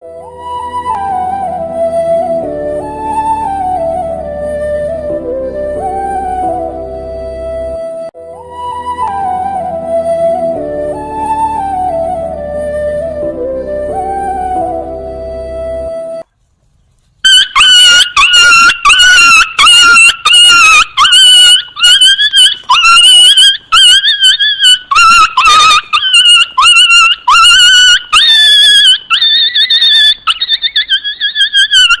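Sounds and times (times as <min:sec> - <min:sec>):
flute music: 0:00.0 - 0:16.3, 0:17.2 - 0:32.0
animal yelping: 0:17.2 - 0:32.0.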